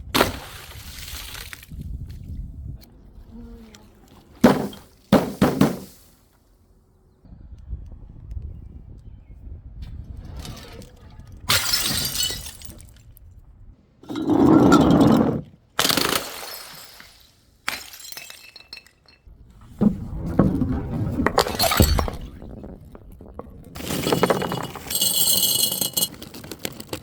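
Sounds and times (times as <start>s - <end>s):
glass bottles smashing: 11.5s - 12.8s, 14.1s - 19.3s, 21.4s - 22.7s, 23.8s - 27.0s
glass shards tinkling: 23.8s - 26.2s.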